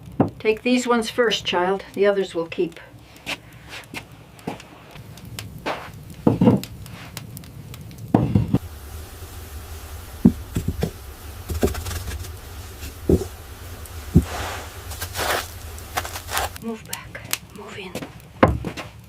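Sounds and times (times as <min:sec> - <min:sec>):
steady low rumble: 0:05.0 - 0:17.4
knocks and thumps: 0:08.1 - 0:16.6.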